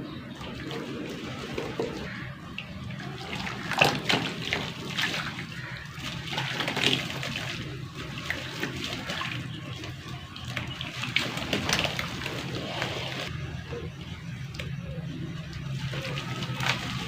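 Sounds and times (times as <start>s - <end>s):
water trickling and splashing: 0.0s - 17.0s
chunks crumbling into water: 3.0s - 9.6s, 10.5s - 13.3s.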